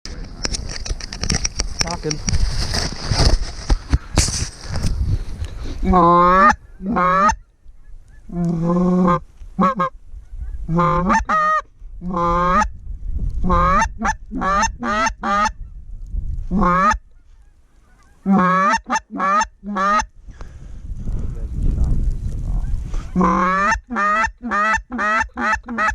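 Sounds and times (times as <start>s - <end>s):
low wind rumble: 0.1s - 18.3s, 19.5s - 25.7s
geese honking: 5.8s - 12.7s, 13.5s - 15.6s, 16.5s - 20.1s, 23.0s - 25.9s.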